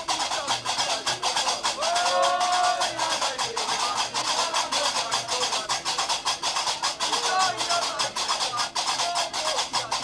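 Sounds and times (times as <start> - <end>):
rapid iron castanets clacking: 0.0 - 10.0.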